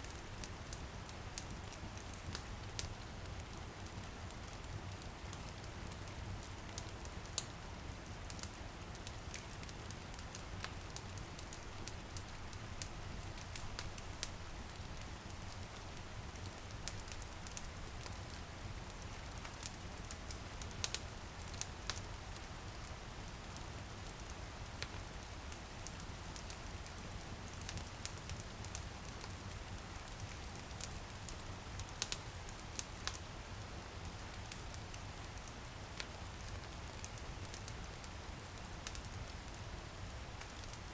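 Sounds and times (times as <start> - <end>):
light drizzle on a window: 0.0 - 40.9
wood fire crackling and popping: 0.2 - 40.9.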